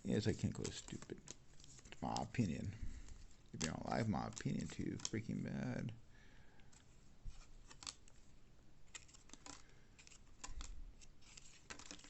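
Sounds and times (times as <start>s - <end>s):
faint rustling of cards: 0.0s - 12.0s
trading cards clicking: 0.4s - 2.5s, 3.6s - 5.5s, 7.7s - 8.1s, 8.9s - 10.7s, 11.3s - 12.0s.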